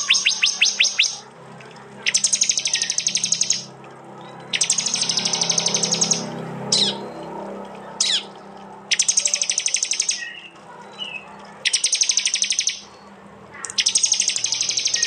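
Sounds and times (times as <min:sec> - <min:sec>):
bird rapid sharp call trains: 0:00.0 - 0:01.3, 0:02.0 - 0:03.8, 0:04.5 - 0:07.2, 0:08.9 - 0:13.0, 0:13.6 - 0:15.0.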